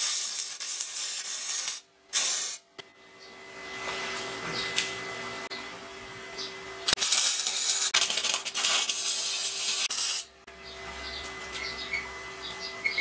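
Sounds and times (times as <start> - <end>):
arc welding crackling hiss: 0.0 - 2.6, 6.9 - 10.4.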